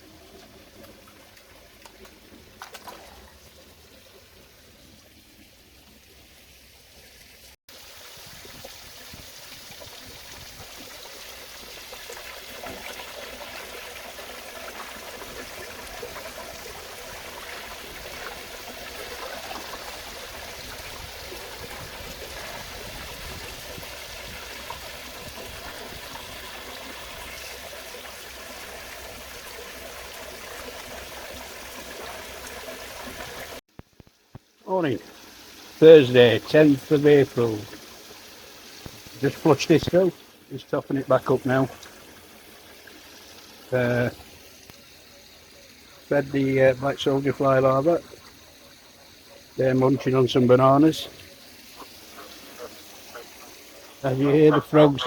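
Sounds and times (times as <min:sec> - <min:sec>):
water running and trickling: 0:00.0 - 0:55.0.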